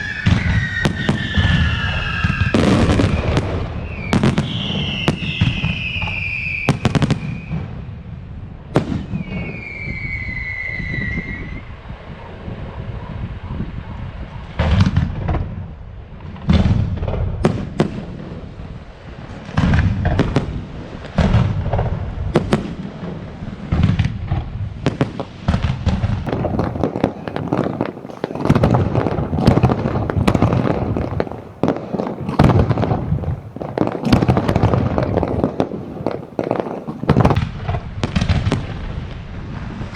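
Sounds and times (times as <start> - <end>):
falling firework whistles: 0.0 - 7.8, 8.8 - 15.1
firework crackle: 0.0 - 39.9.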